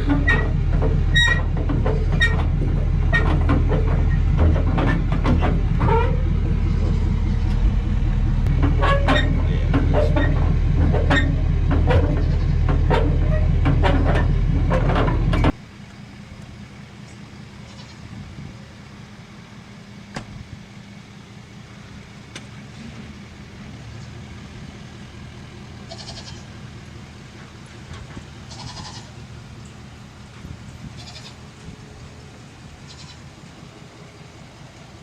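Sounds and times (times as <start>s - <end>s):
vehicle engine rattling: 0.0s - 35.0s
goats bleating: 25.8s - 26.6s, 28.4s - 29.2s, 30.9s - 31.4s, 32.8s - 33.3s.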